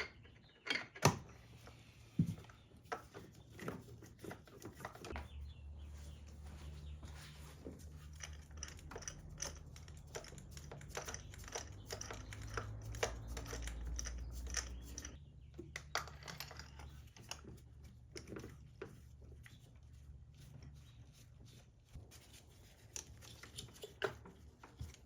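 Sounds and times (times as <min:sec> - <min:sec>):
tools clicking and tapping: 0:07.6 - 0:19.1.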